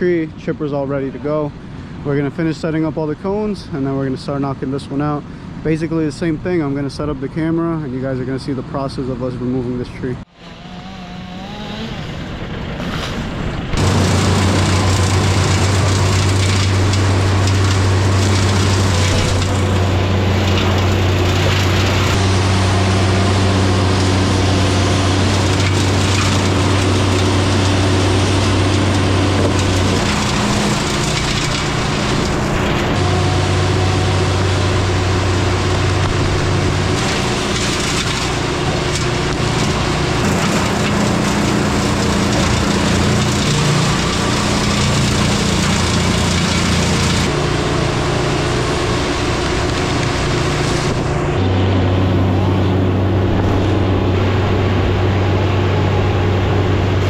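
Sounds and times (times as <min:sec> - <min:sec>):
wood chipper engine drone: 0:00.0 - 0:57.0
wood cracking and splintering: 0:13.7 - 0:51.2.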